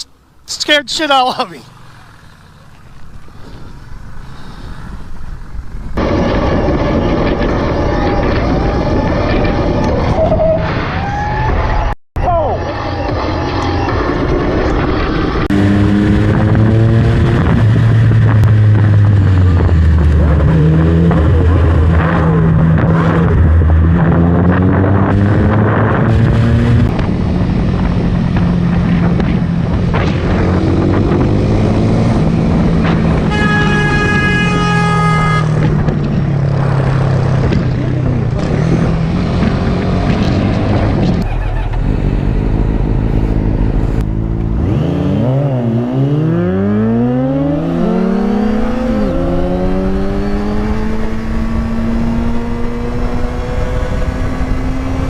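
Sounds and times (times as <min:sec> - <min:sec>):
motorcycle engine accelerating: 0:12.5 - 0:55.0.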